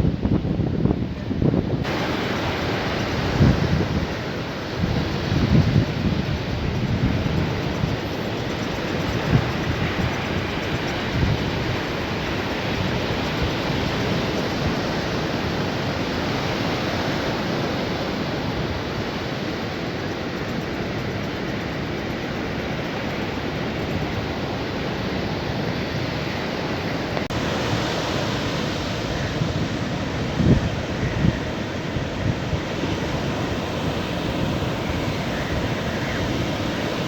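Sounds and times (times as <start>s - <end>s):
wind bumps on microphone: 0.0s - 19.4s, 27.1s - 37.0s
sea surf washing onto beach: 0.0s - 37.0s.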